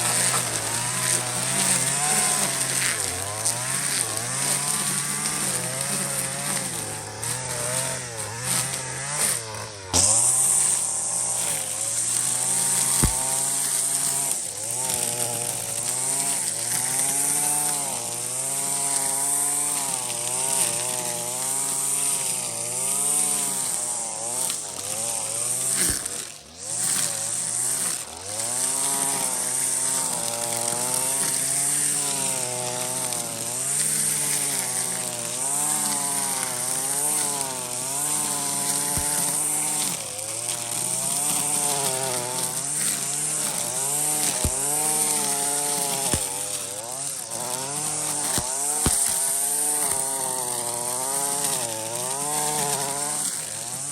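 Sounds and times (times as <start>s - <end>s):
power tool engine revving: 0.0s - 53.9s.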